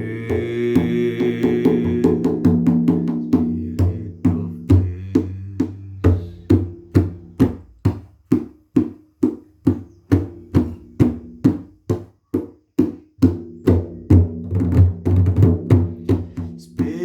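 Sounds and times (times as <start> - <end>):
drum struck in steady beat: 0.0 - 17.0.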